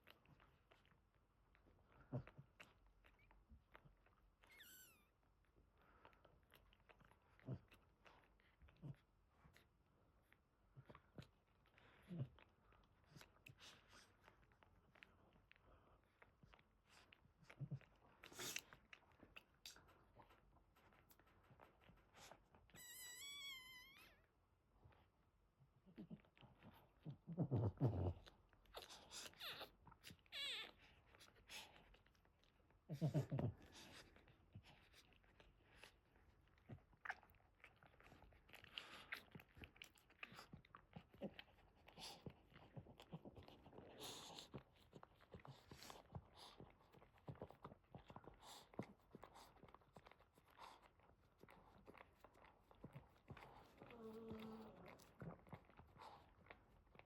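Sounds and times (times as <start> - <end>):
puppies nursing wet smacking: 0.0 - 57.0
puppy squealing: 4.5 - 5.1, 22.8 - 24.1.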